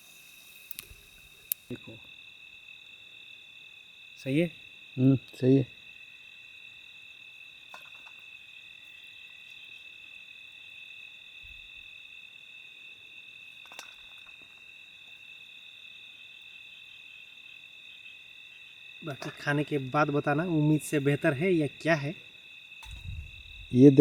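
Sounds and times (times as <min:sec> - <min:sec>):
crickets chirring: 0:00.0 - 0:24.0
faint clicks: 0:00.5 - 0:01.7.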